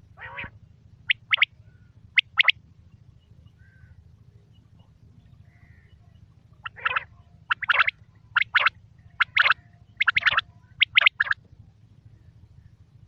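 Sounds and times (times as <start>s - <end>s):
quail calling: 0.0s - 2.5s, 5.5s - 11.4s
faint chirps: 0.0s - 13.0s
steady low hum: 0.0s - 13.0s.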